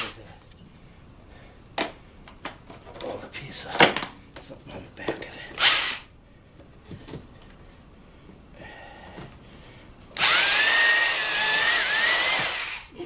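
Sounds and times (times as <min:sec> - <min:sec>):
electric drill whining: 0:05.6 - 0:06.1, 0:10.2 - 0:12.9.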